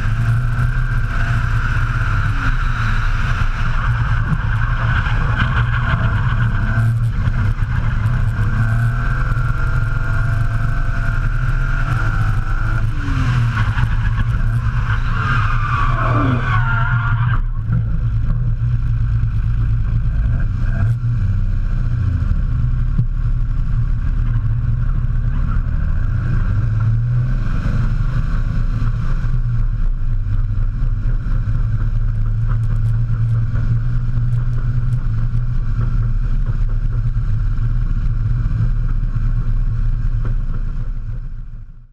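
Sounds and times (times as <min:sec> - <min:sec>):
car engine running hard: 0:00.0 - 0:41.9
tyre squeal: 0:11.9 - 0:17.6.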